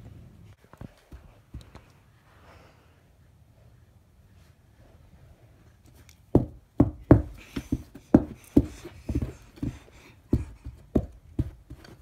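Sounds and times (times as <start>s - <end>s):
toy thumping on carpet: 6.3s - 12.0s.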